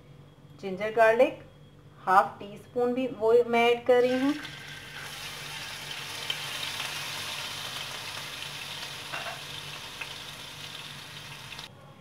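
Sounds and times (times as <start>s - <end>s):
paste sizzling in hot oil: 4.1s - 11.7s.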